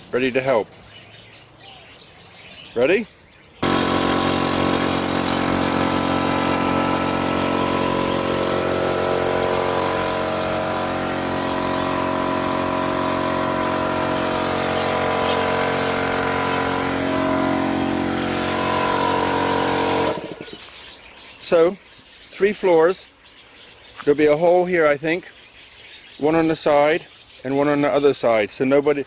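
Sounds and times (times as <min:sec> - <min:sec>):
power tool motor whining: 0:03.6 - 0:21.0.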